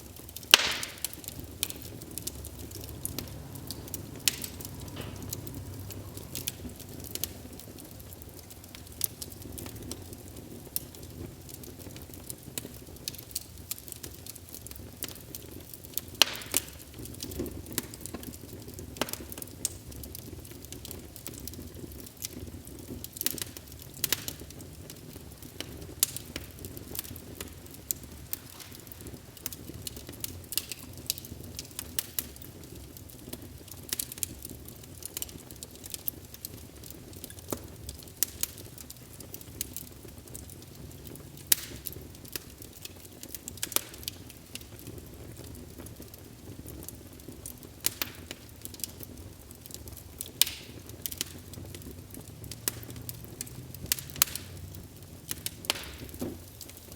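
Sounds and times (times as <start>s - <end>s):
wood fire crackling and popping: 0.0s - 56.9s.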